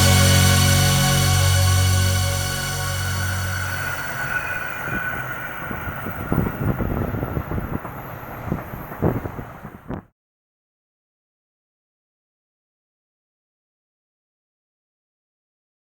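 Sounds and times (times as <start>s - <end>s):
background music: 0.0s - 5.6s
train running on rails: 0.0s - 10.1s
wheels clattering: 2.4s - 9.9s.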